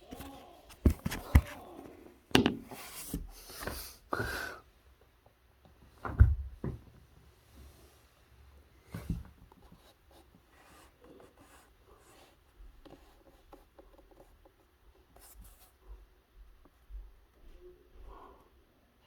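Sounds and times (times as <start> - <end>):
rustling and scratching handling noise: 0.0 - 4.0, 8.8 - 18.6.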